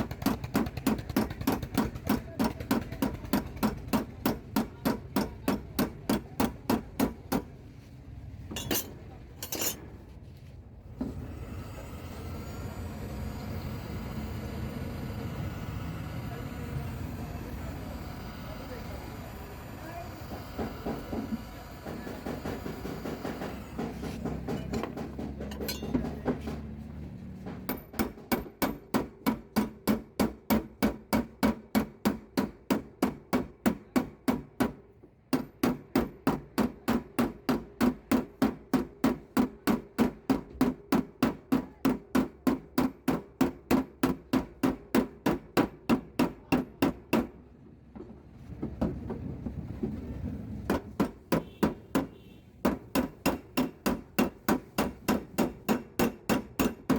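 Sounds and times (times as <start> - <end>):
hammer tapping metal: 0.0 - 7.5, 8.5 - 9.8, 21.8 - 26.7, 27.6 - 47.3, 50.7 - 56.9.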